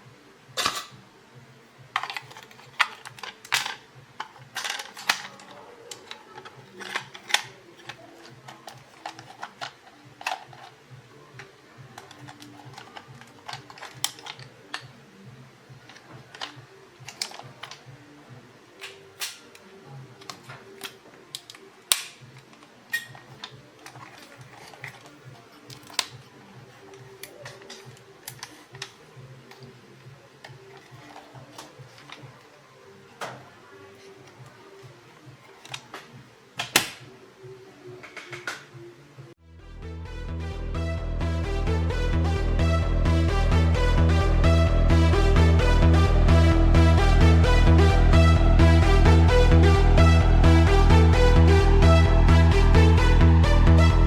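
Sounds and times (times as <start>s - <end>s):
plastic toy parts clicking: 2.0s - 10.8s, 12.0s - 14.8s, 15.9s - 17.8s, 20.2s - 26.2s, 26.8s - 29.7s.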